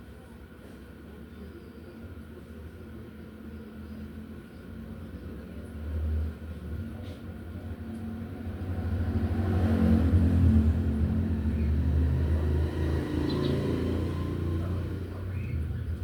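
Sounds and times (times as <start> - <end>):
vehicle engine rumble passing by: 5.0 - 16.0.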